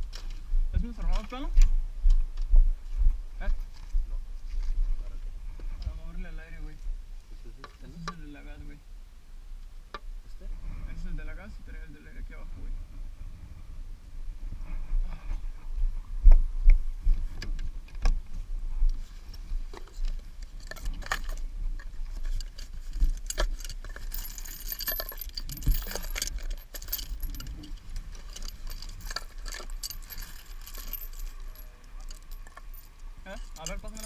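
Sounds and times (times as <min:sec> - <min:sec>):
metal tools clinking: 0:22.2 - 0:34.0.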